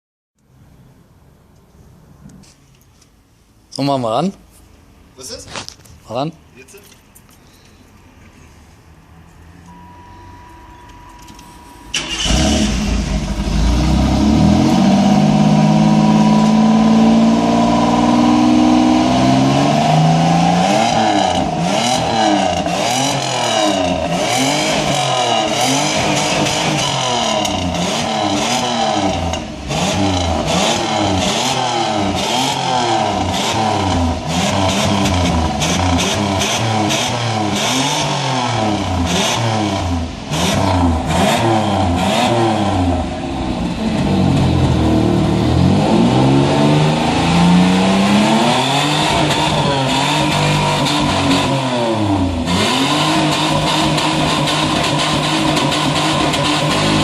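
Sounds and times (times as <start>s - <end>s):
car engine revving: 11.9s - 57.0s.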